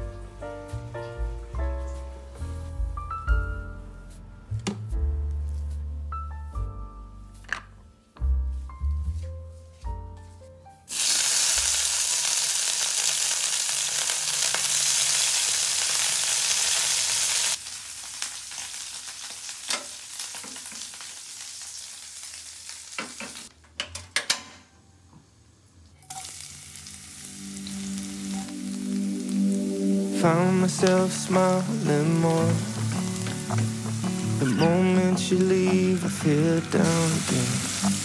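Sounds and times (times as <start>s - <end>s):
food sizzling in hot oil: 10.9s - 23.5s, 26.0s - 38.0s
utensils knocking on pan: 31.9s - 38.0s.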